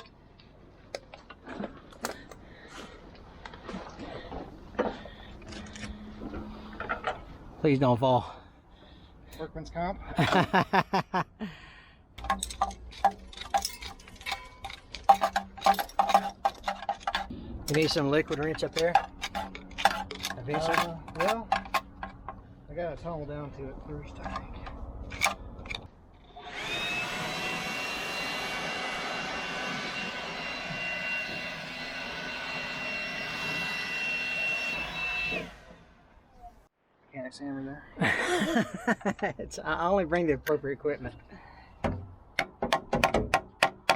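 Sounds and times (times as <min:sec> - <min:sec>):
rushing air: 0:17.3 - 0:18.1
electric fan motor whining: 0:26.3 - 0:35.8.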